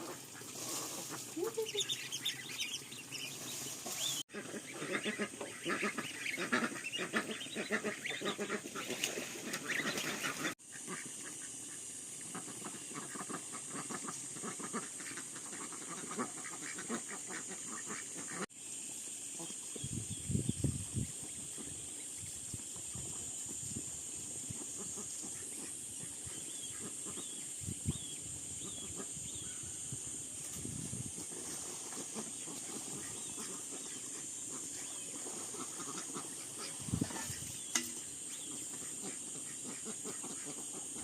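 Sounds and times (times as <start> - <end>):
waterfowl flock calling: 3.8 - 11.0, 32.0 - 41.0
steady high hiss: 10.0 - 41.0.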